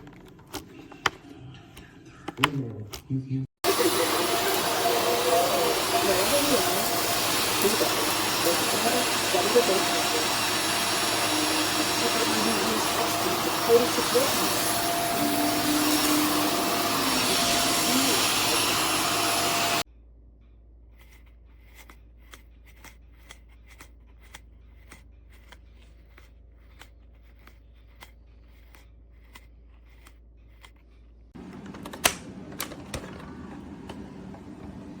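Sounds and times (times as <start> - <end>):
upright vacuum running: 3.6 - 19.8, 31.4 - 35.0.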